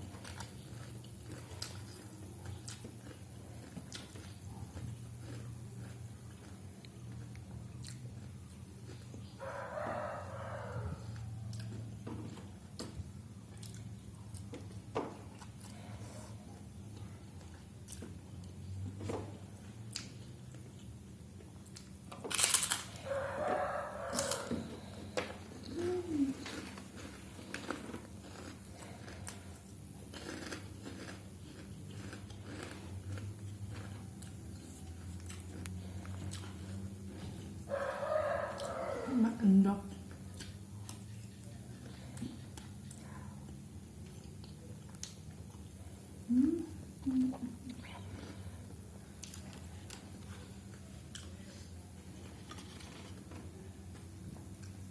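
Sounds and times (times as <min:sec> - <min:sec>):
person chewing noodles: 0:00.0 - 0:39.1, 0:40.0 - 0:54.9
steady low hum: 0:00.0 - 0:54.9
rooster crowing: 0:09.4 - 0:11.6, 0:23.0 - 0:25.0, 0:37.7 - 0:39.5
small clicks and crunches: 0:21.6 - 0:23.0, 0:24.1 - 0:37.3, 0:52.1 - 0:54.8.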